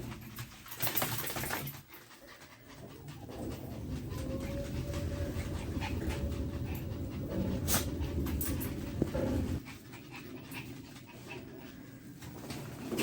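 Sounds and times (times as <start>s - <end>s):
dogs panting: 0.0s - 12.8s
low rumble: 2.9s - 9.7s.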